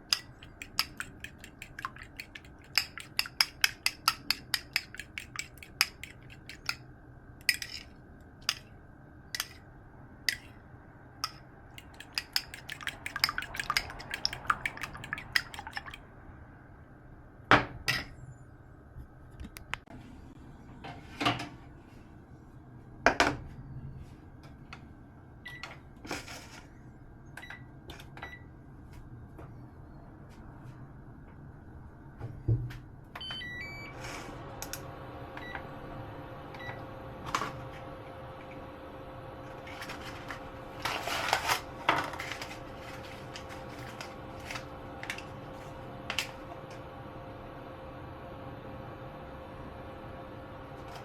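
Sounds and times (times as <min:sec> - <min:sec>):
utensils clinking against bowl: 0:00.0 - 0:06.8, 0:07.4 - 0:08.7, 0:09.4 - 0:09.6, 0:11.2 - 0:16.0.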